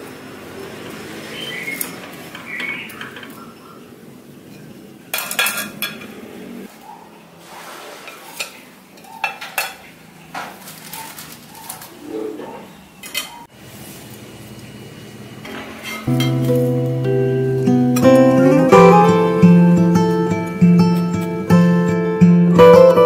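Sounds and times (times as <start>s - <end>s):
cutlery clinking against dishes: 4.5s - 6.2s, 8.1s - 11.9s, 13.0s - 13.5s, 15.5s - 16.6s.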